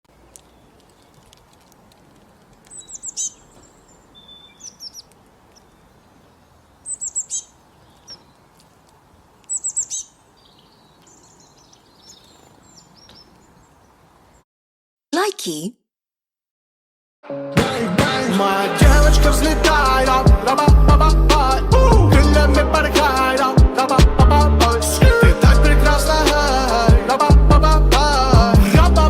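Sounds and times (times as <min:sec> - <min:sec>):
bird singing: 0:00.3 - 0:01.2, 0:02.6 - 0:08.6, 0:09.4 - 0:14.4
faint bird chirps: 0:02.6 - 0:08.5, 0:09.4 - 0:14.4.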